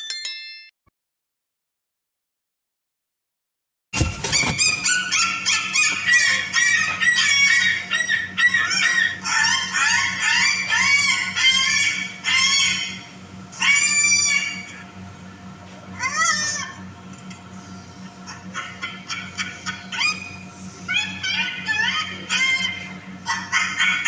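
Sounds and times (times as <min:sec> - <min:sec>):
cockatoo squawking: 0:04.2 - 0:14.8, 0:18.2 - 0:24.0.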